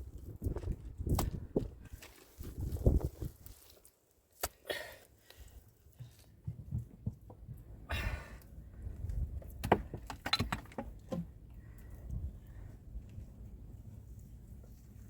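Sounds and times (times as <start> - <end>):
objects clicking and knocking: 9.6 - 11.3.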